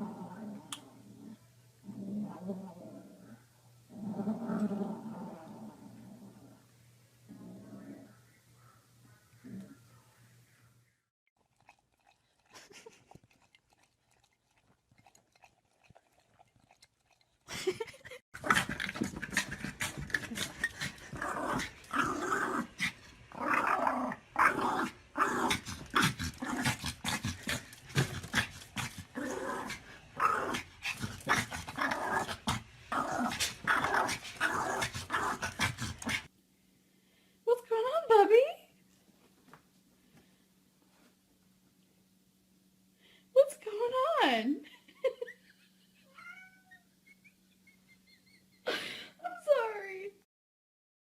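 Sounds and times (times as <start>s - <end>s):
dog growling and grumbling: 0.0s - 6.7s, 7.3s - 8.1s, 17.5s - 36.3s.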